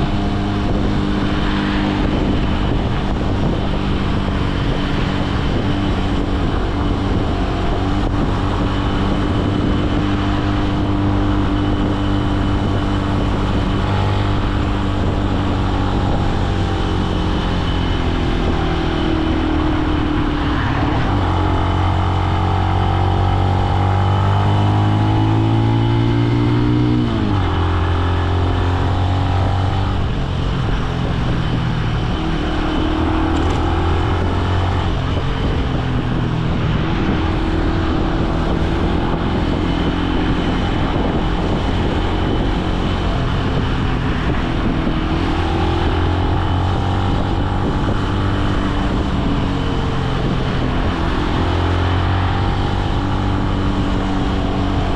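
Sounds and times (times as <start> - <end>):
motorcycle engine accelerating: 0.0 - 54.9.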